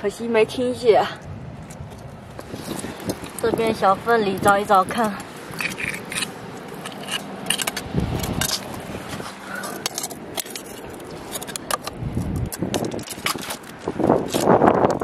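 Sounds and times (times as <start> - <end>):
rock and shell clicking and scraping: 1.6 - 15.0.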